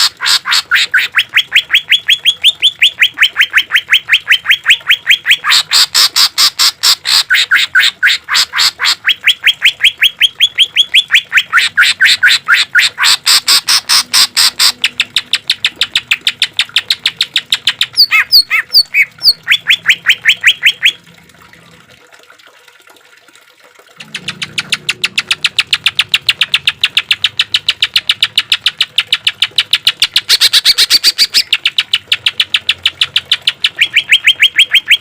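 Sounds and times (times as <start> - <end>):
bird singing harsh repeated notes: 0.0 - 21.0, 24.0 - 35.0
clear whistled bird notes: 33.6 - 35.0.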